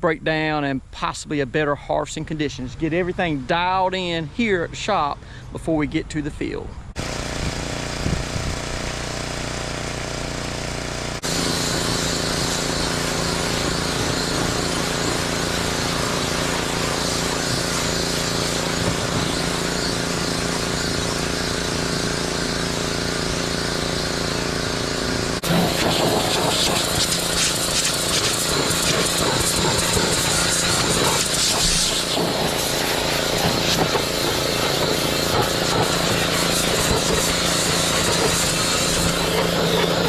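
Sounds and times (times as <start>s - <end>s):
machinery humming: 6.9s - 40.0s
hiss: 11.2s - 24.4s, 25.4s - 40.0s.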